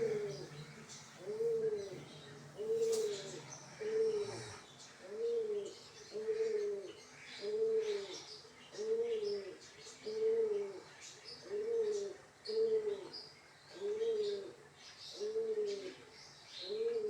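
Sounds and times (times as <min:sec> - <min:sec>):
pigeon cooing: 0:00.0 - 0:08.2, 0:15.2 - 0:16.0
small birds chirping: 0:00.0 - 0:17.0.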